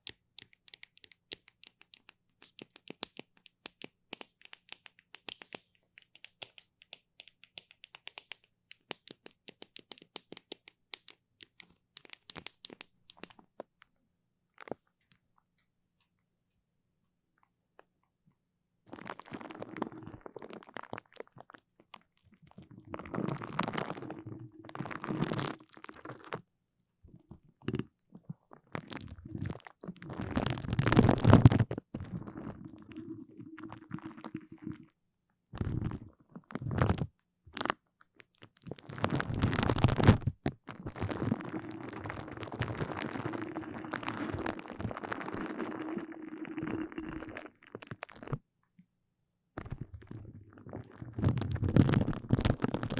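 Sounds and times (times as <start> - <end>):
sticky material crackling: 38.4 - 48.4, 49.6 - 52.9.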